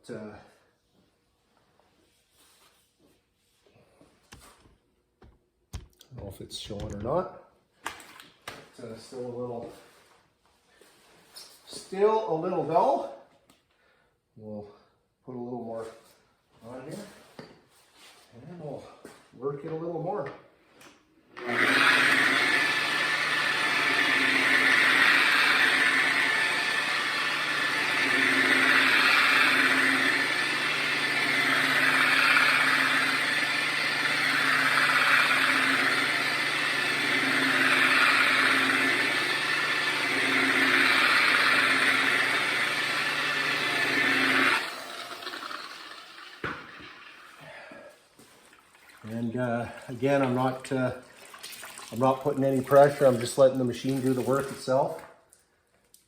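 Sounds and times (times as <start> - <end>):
electric polisher buffing: 21.4 - 47.1.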